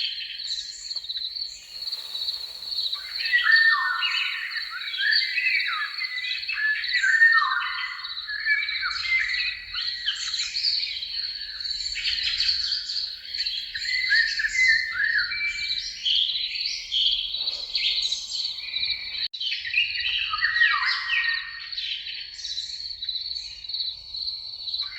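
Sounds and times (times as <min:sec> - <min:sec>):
birds chirping and singing: 0:01.9 - 0:19.2.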